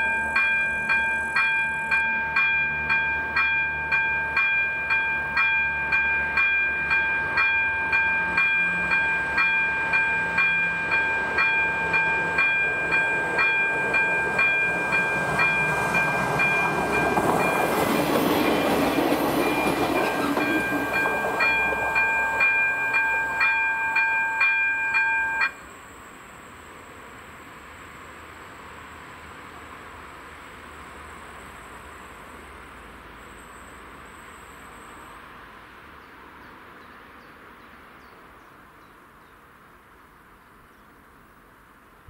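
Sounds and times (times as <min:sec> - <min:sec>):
pulsing three-tone ringing signal: 0:00.0 - 0:17.7, 0:19.5 - 0:25.6.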